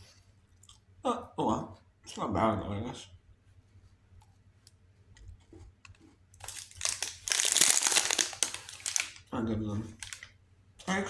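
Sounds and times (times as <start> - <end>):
plastic wrapper crinkling: 6.4 - 10.4.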